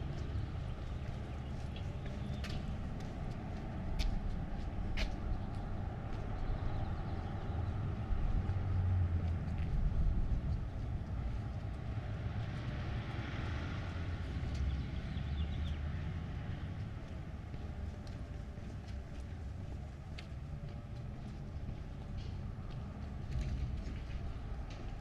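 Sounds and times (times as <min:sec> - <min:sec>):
low traffic rumble: 0:00.0 - 0:25.0
car passing: 0:10.2 - 0:17.8.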